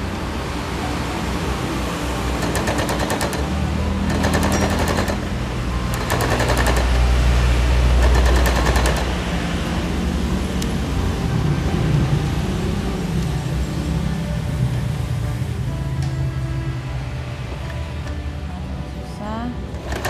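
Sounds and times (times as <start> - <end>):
sewing machine stitching: 4.1 - 5.3, 5.9 - 7.0, 8.0 - 9.2, 19.8 - 20.0.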